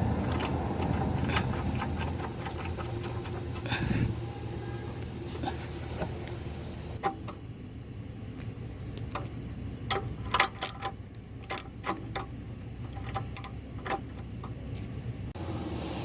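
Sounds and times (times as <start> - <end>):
steady low hum: 0.0 - 15.6
sharp metallic clicks: 9.9 - 14.6.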